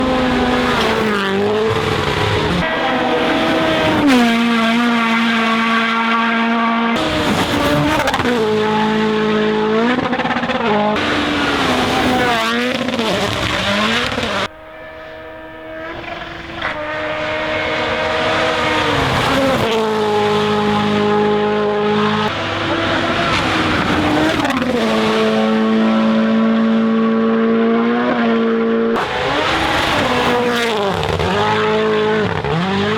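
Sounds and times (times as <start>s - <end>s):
rally car engines running flat out: 0.0s - 32.9s.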